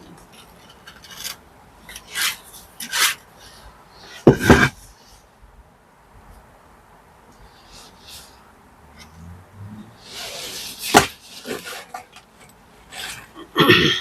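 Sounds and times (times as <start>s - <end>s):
hand tool scraping brickwork: 0.3s - 4.9s, 10.0s - 13.4s.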